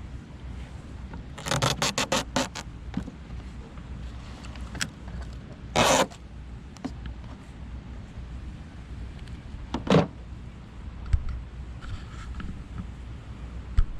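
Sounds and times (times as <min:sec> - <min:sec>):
short loud rasp: 0:01.4 - 0:02.6, 0:05.8 - 0:06.2.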